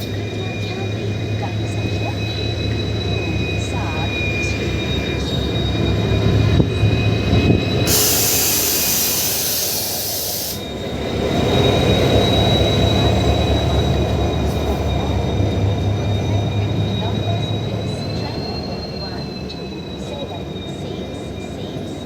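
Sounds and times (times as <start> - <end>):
train wheels rumbling: 0.0 - 22.0
burst of hiss: 7.8 - 10.7.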